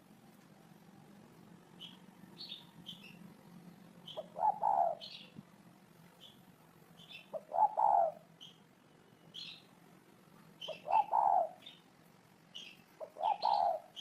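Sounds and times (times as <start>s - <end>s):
small birds chirping: 0.4s - 14.0s
dove cooing: 4.1s - 5.2s, 7.3s - 8.3s, 10.6s - 11.8s, 13.0s - 14.0s.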